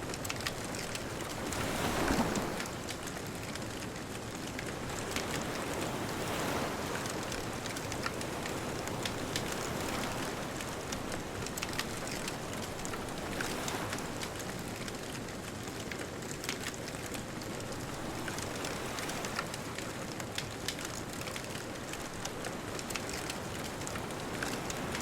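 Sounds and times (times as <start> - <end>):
bonfire crackling and popping: 0.0 - 25.0
distant ocean surf: 0.2 - 3.1.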